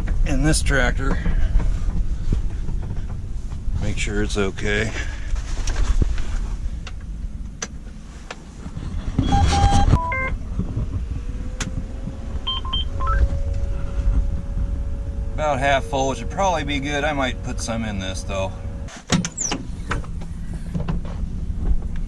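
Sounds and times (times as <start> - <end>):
low rumble: 0.0 - 18.9, 19.6 - 22.0
electronic beeps: 9.2 - 10.4, 12.4 - 13.3
steady electric tone: 9.9 - 18.9.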